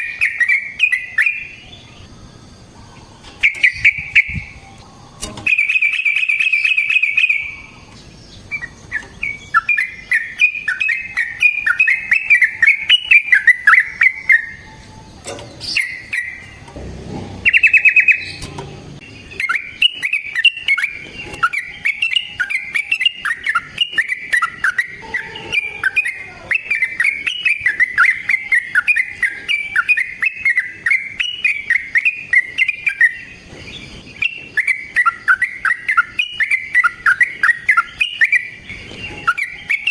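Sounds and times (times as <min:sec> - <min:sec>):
bird singing bubbling chattering notes: 0:05.5 - 0:14.7, 0:15.5 - 0:39.9.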